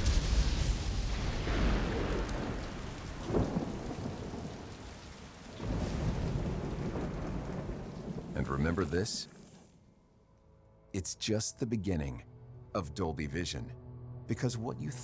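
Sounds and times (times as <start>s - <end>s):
sharp thunder crack: 0.0s - 9.6s
rolling thunder: 0.0s - 9.7s
heavy rain: 0.0s - 9.8s.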